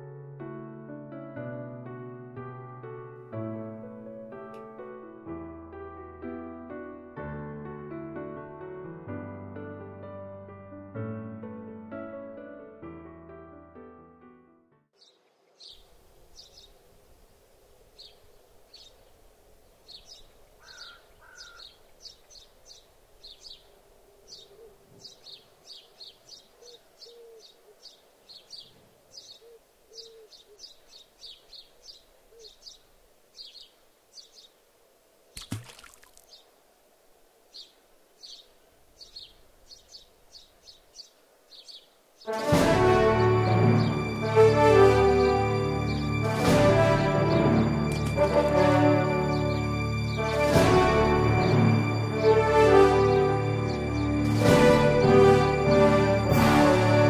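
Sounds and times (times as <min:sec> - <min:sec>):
faint background hiss: 0:15.0 - 0:42.3
birds chirping: 0:15.0 - 0:46.4.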